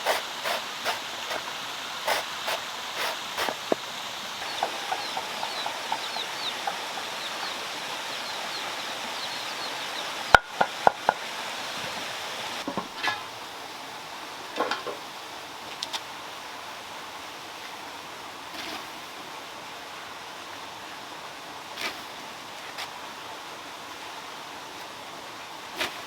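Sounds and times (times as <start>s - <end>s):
water running over stones: 0.0s - 13.0s
bird chirps: 4.4s - 10.4s.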